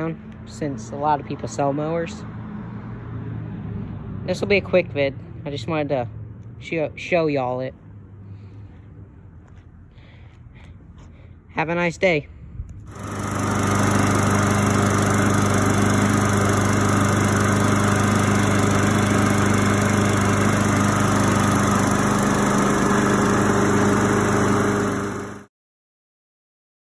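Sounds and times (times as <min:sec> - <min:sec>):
lawn mower engine running: 0:12.7 - 0:25.5.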